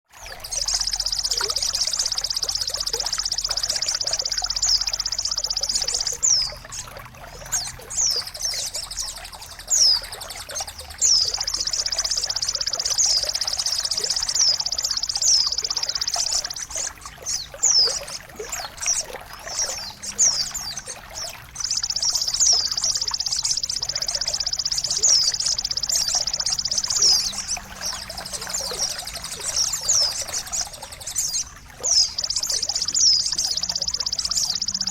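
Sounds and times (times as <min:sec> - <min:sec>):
high whistled bird calls: 0:00.2 - 0:34.9.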